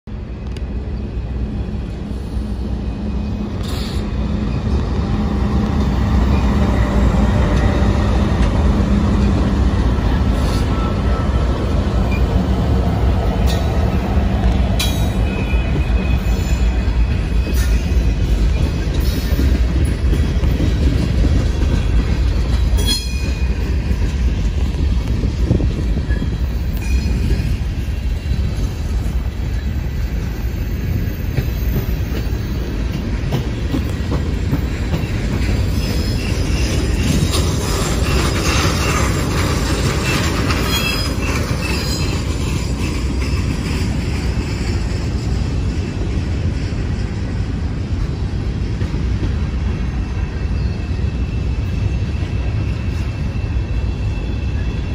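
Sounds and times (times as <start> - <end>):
freight train wheels rumbling: 0.1 - 54.9
high wheel squeals: 15.0 - 19.5, 25.4 - 32.8, 34.9 - 44.0, 49.8 - 54.9.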